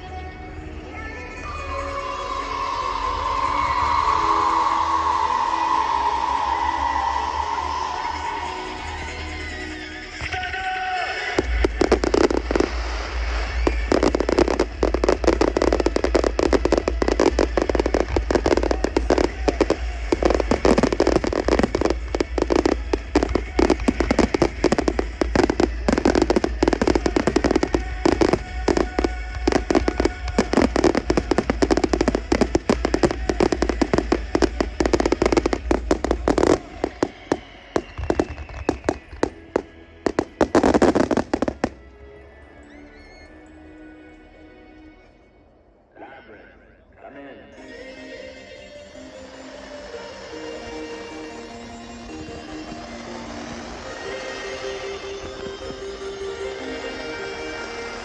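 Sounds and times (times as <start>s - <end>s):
fireworks bangs and crackles: 3.0s - 41.9s, 51.6s - 58.0s.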